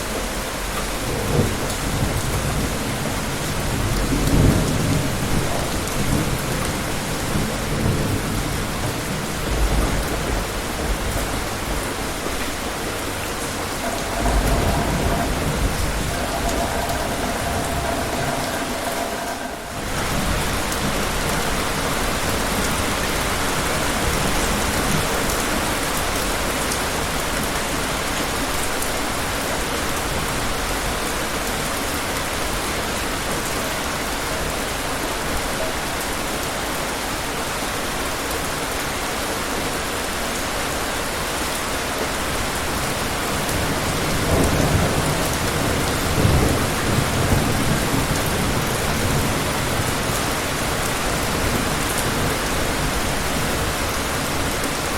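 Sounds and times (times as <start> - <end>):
low rumble of thunder: 0.0 - 28.5, 42.4 - 54.9
heavy rain falling: 0.0 - 54.9.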